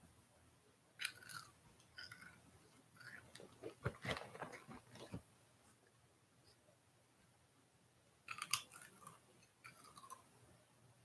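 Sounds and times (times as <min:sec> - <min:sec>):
crunchy chips being chewed: 0:01.0 - 0:04.7, 0:08.3 - 0:10.2.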